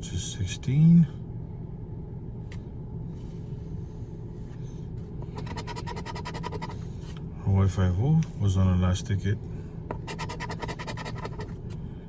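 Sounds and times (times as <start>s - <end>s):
steady low rumble: 0.0s - 10.2s
scratching lottery ticket: 5.4s - 6.8s, 10.0s - 11.5s.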